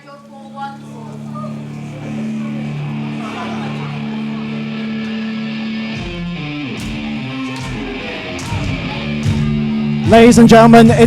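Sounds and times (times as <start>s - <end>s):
electric guitar chords: 0.2s - 11.0s
drums: 5.9s - 11.0s.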